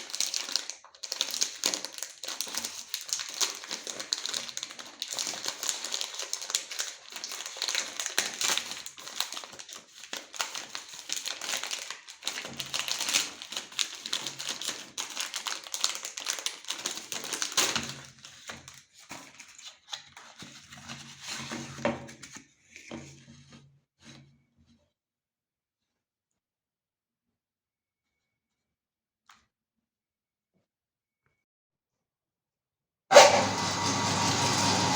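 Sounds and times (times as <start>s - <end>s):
meat grinder crackling and clicking: 33.1s - 34.9s.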